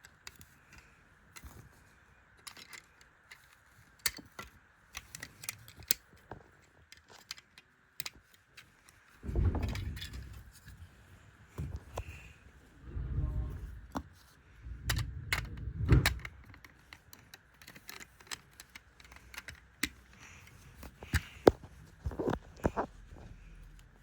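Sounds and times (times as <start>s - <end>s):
plastic building bricks clicking: 2.3s - 10.8s, 12.8s - 22.9s
low bumps and rattling: 9.2s - 16.6s.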